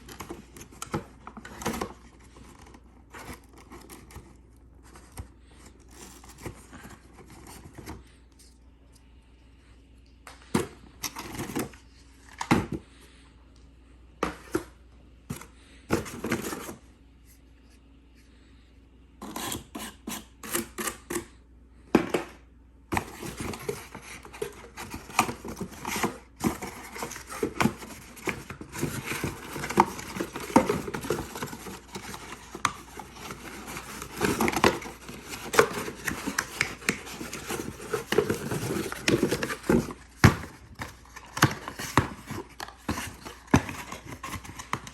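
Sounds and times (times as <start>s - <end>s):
packaging rustling and crinkling: 23.0s - 44.9s.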